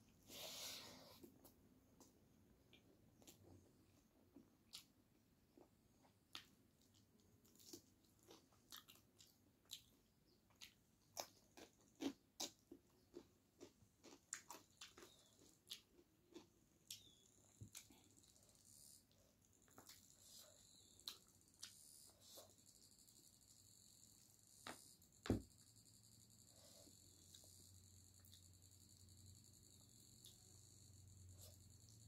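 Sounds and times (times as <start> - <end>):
person chewing food: 2.0 - 22.6.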